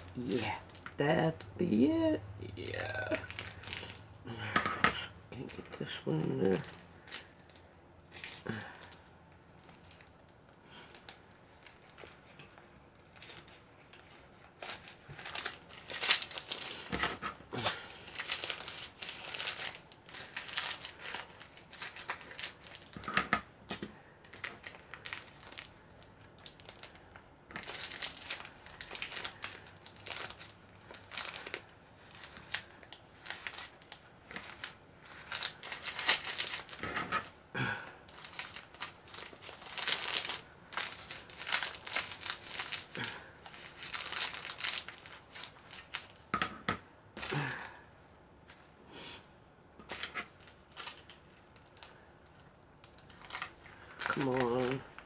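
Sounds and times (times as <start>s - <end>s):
paper crinkling and rustling: 5.4s - 37.4s, 38.1s - 46.3s, 49.8s - 55.0s.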